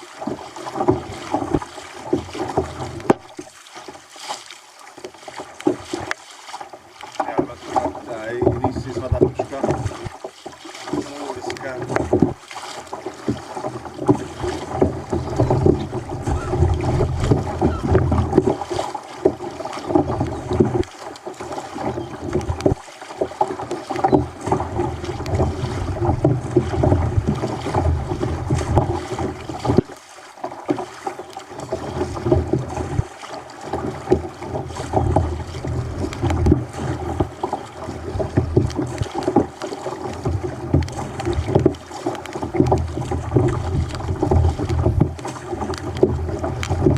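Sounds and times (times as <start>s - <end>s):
water slapping against kayak hull: 0.0s - 46.9s
wind buffeting microphone: 14.7s - 18.6s.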